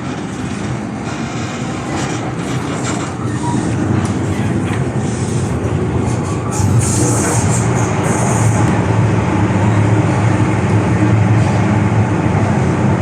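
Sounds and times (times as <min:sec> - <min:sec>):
metro train wheel-and-rail rumble: 0:00.0 - 0:13.0.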